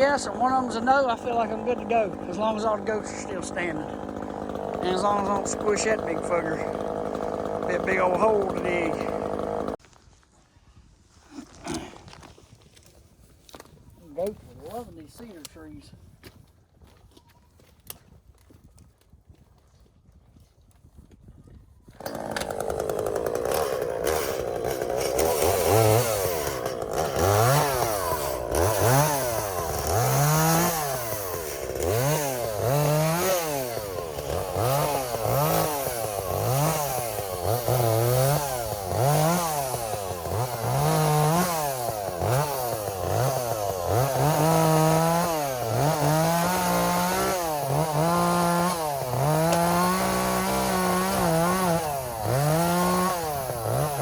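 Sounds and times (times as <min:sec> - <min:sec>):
chainsaw revving cutting timber: 0:00.0 - 0:09.8, 0:22.0 - 0:54.0.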